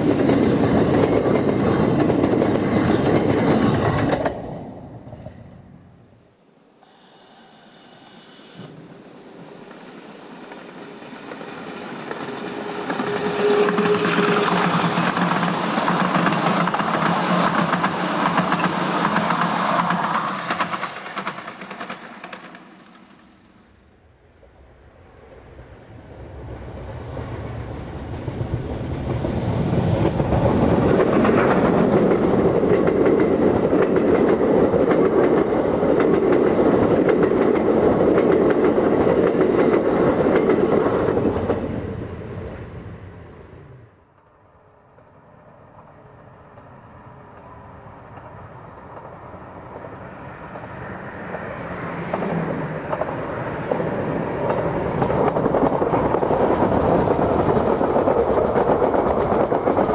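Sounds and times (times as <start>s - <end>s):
approaching train rumble: 0.0s - 6.2s, 7.4s - 59.9s
train wheels clattering: 9.4s - 23.5s.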